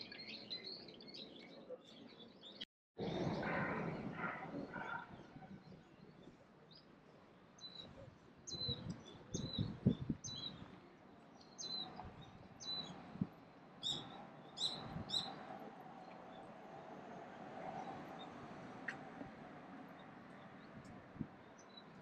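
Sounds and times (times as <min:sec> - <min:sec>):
bird chirping: 0:13.8 - 0:15.4.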